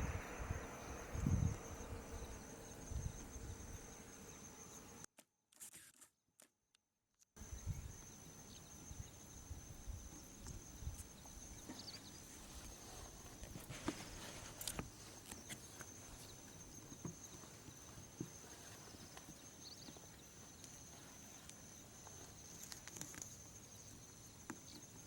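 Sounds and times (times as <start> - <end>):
high-pitched insect drone: 0.0 - 5.0.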